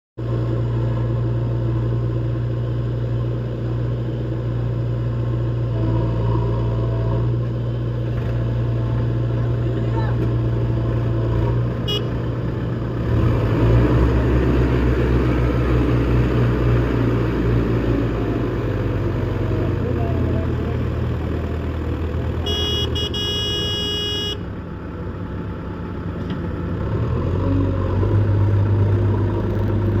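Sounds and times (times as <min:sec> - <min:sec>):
tractor diesel engine running: 0:00.2 - 0:30.0
short high beeps: 0:22.5 - 0:24.4.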